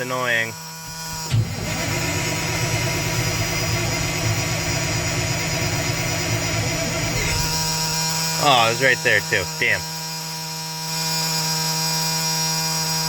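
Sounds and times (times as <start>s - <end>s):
diesel truck engine starting and idling: 0.8s - 9.4s.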